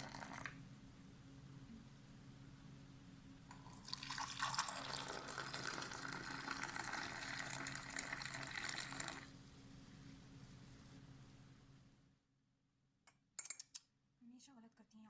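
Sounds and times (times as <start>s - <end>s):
liquid pouring into a vessel: 0.0s - 0.6s, 3.5s - 9.3s.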